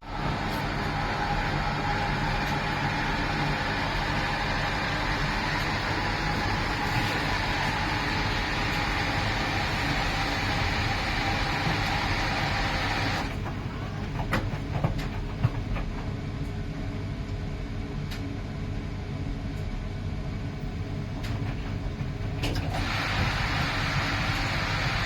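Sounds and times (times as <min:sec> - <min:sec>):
washing machine rumble: 0:00.0 - 0:25.0
machine knocking and clicking: 0:13.2 - 0:16.2.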